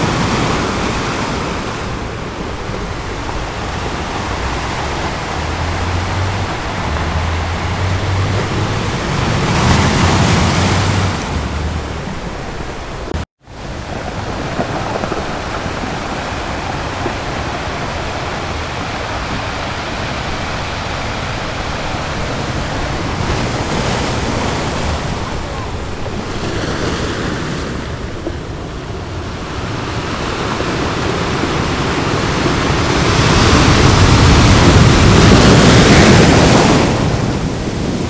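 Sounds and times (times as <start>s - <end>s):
ocean surf washing onto beach: 0.0s - 38.0s
wave breaking: 0.0s - 38.0s.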